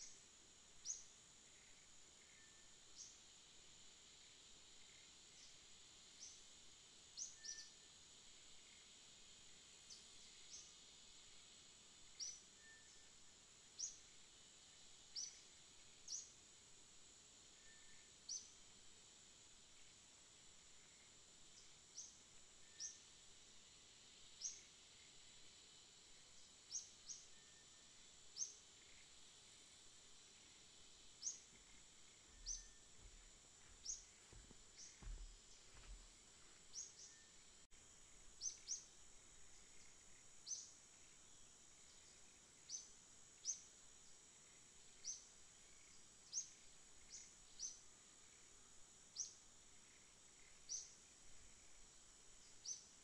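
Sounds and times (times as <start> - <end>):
faint high hiss: 0.0 - 53.0
birds chirping: 31.2 - 37.2.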